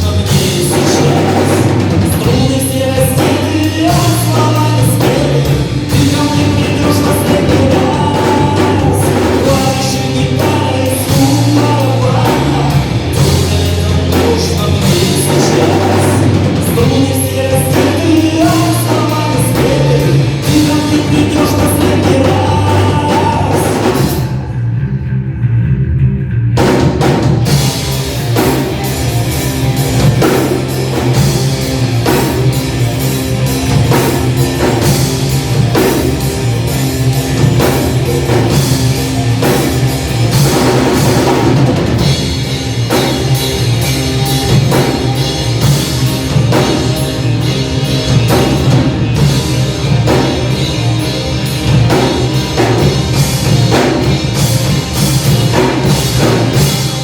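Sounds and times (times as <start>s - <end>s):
drum kit beat: 0.0s - 24.5s, 26.6s - 57.0s
rock band playing: 0.0s - 57.0s.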